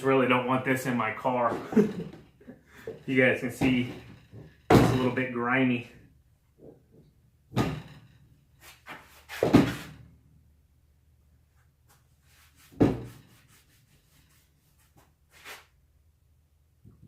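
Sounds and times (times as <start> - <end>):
rubbing and scraping: 8.5 - 9.9, 11.6 - 15.8.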